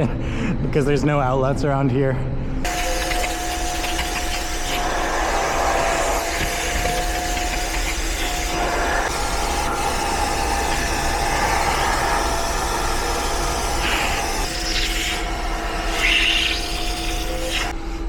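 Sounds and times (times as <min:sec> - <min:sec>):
cleaner motor whine: 0:02.7 - 0:18.0
suction rushing: 0:04.6 - 0:16.8.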